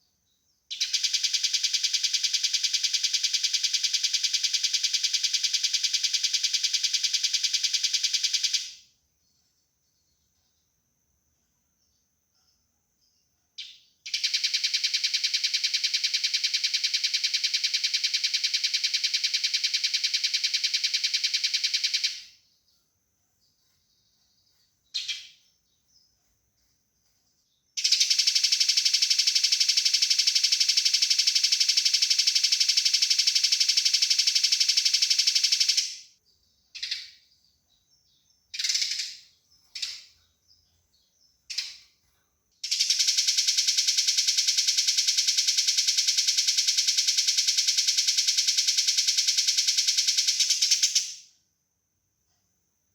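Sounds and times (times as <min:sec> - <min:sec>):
sparrow harsh chirps: 0:24.1 - 0:26.1, 0:38.1 - 0:40.2.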